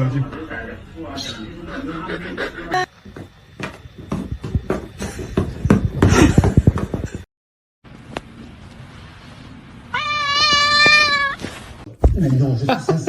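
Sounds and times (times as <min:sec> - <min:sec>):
rapid clatter of knocks: 0:03.2 - 0:07.2.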